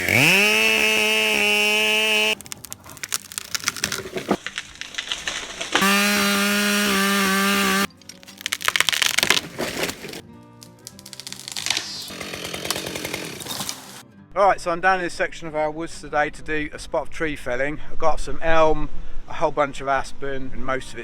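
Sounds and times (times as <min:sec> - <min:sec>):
chainsaw running at full throttle: 0:00.0 - 0:02.4, 0:05.7 - 0:07.9, 0:12.0 - 0:14.0
wood cracking and snapping: 0:00.0 - 0:14.0.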